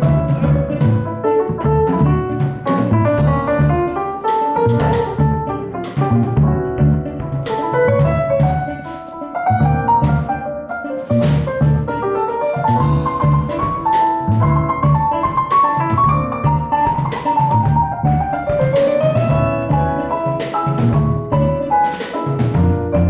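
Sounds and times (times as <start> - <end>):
bass: 0.0 - 23.0
drum kit: 0.0 - 23.0
guitar: 0.0 - 23.0
piano: 0.0 - 23.0.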